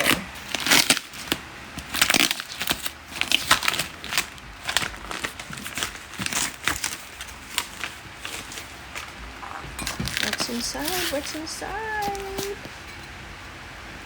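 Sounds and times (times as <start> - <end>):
cardboard box packing rustling: 0.0 - 13.1.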